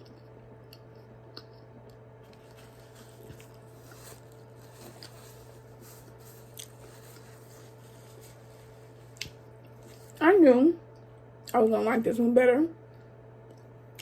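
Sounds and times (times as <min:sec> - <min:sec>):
person chewing quietly: 0:00.0 - 0:10.2.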